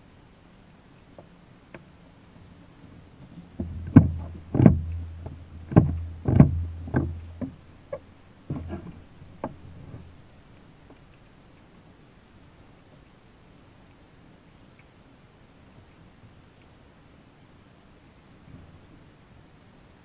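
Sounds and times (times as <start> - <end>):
knocks on kayak hull: 3.6 - 7.6
low rumble: 3.6 - 10.2.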